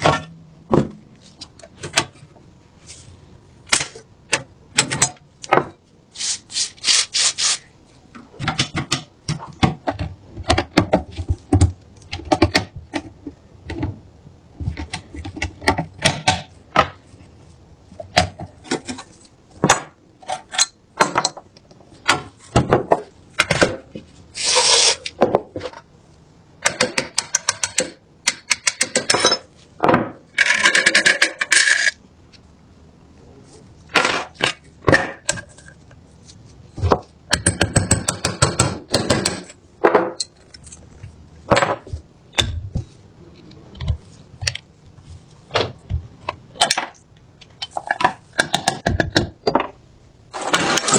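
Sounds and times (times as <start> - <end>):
metal parts clinking and knocking: 30.3 - 32.0.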